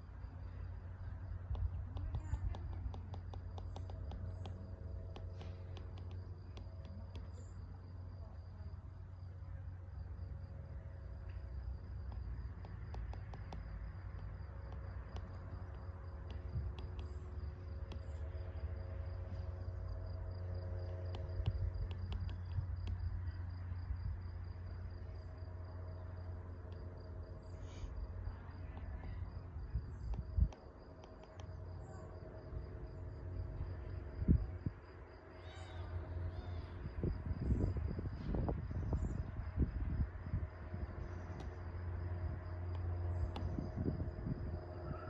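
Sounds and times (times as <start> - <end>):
cricket chirping trill: 0.0 - 45.0
low rumble: 0.0 - 45.0
light clicks: 1.4 - 7.6, 11.2 - 18.3, 20.8 - 23.0, 30.0 - 31.6.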